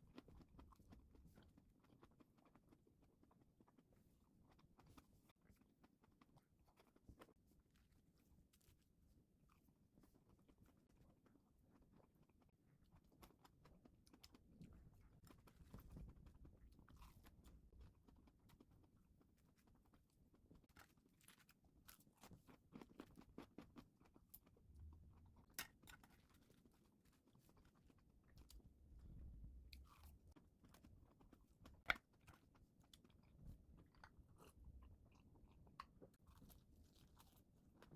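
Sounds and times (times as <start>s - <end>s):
close chewing and crunching: 0.0s - 37.9s.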